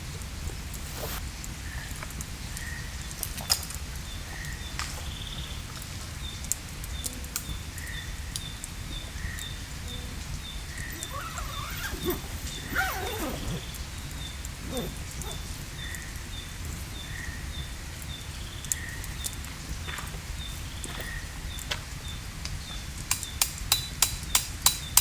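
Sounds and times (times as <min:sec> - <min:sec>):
forest birds calling: 0:03.9 - 0:23.4.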